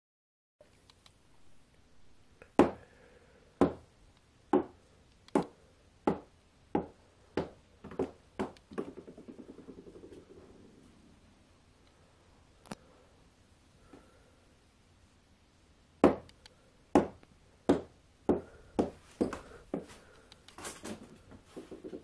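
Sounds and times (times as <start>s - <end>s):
ball bouncing on hard floor: 6.1s - 10.1s.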